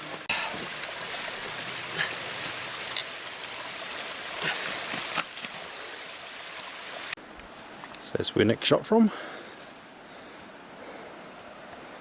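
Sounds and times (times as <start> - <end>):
stream water rushing: 0.0 - 7.2.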